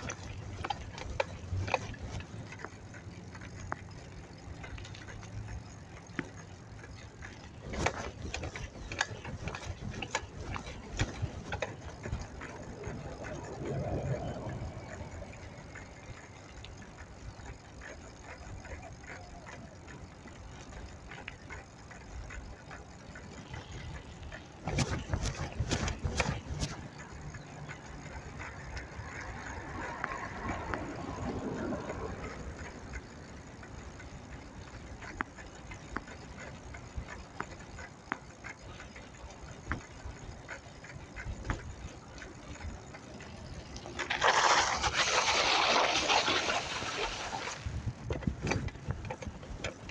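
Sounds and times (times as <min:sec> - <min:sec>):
street background rumble: 0:00.0 - 0:49.9.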